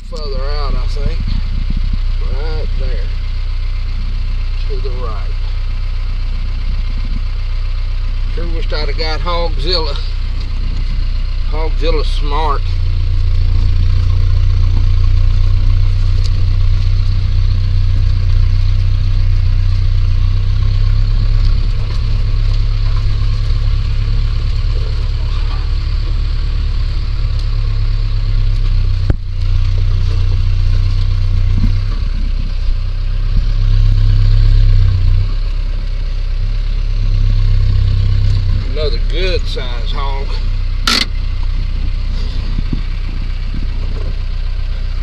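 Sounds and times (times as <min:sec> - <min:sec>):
vehicle engine humming: 0:00.0 - 0:45.0.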